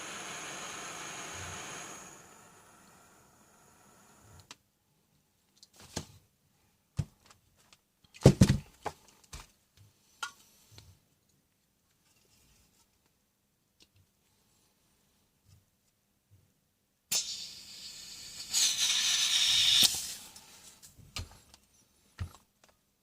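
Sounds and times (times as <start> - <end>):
gas hissing: 0.0 - 4.5, 17.1 - 20.4.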